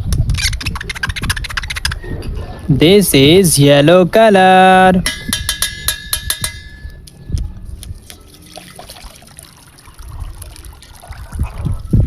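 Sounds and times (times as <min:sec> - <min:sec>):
water trickling and sloshing: 0:06.3 - 0:12.0.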